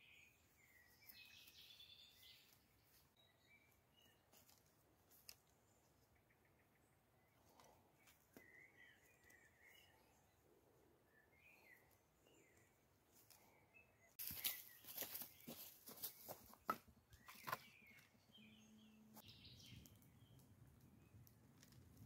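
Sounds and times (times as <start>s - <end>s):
faint bird chirps: 5.7s - 12.8s.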